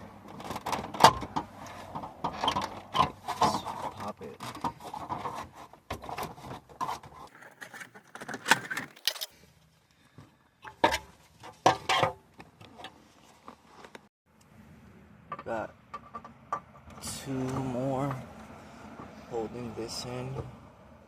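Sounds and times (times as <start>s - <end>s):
plastic trim clicking and rattling: 7.3s - 9.3s.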